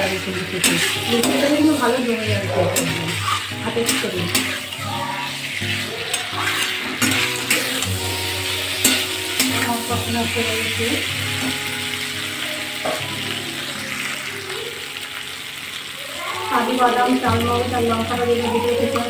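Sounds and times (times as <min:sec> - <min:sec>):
metal spatula scraping wok: 0:00.0 - 0:12.0
food sizzling in oil: 0:00.0 - 0:19.0
soft background music: 0:00.0 - 0:19.0
spatula clicking against pan: 0:00.6 - 0:01.9, 0:02.7 - 0:04.8.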